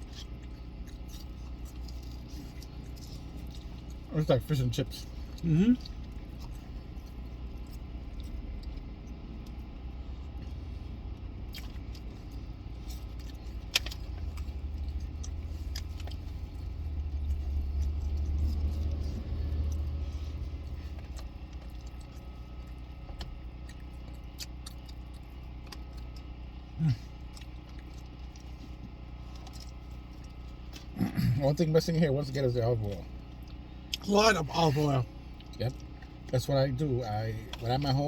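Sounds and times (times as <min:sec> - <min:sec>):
car interior rumble: 0:00.0 - 0:26.2.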